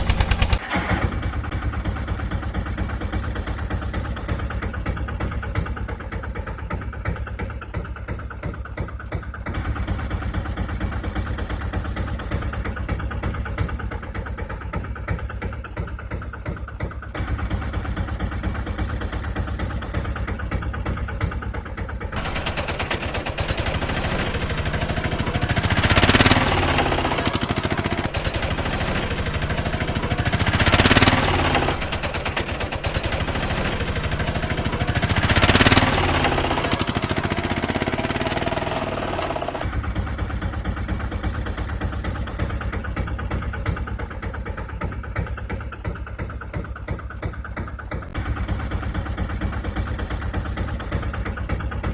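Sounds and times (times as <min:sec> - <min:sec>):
small engine chugging: 0:00.0 - 0:51.9.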